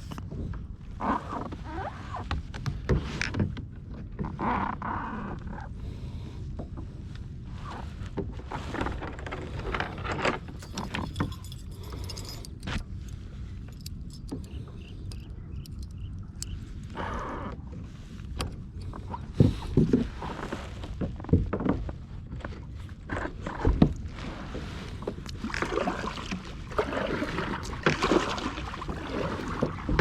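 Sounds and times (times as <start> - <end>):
wind and water rumble on microphone: 0.0 - 30.0
clicks and knocks of gear: 8.7 - 16.9.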